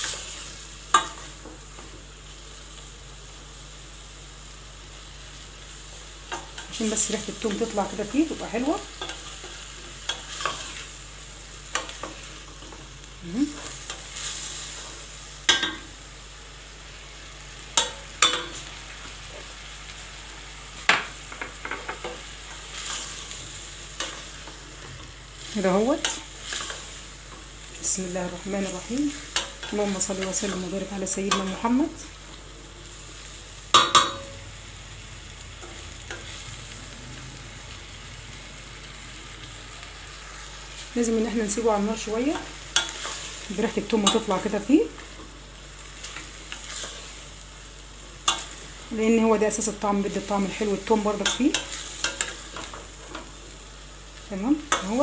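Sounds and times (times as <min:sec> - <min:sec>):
beans sizzling in a pot: 0:00.0 - 0:55.0
spoon knocking against pot: 0:33.8 - 0:34.3.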